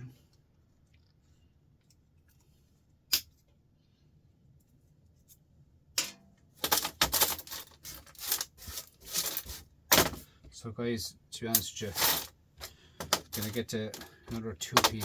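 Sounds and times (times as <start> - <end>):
metal scrap parts clinking: 6.0 - 10.2, 11.8 - 15.0.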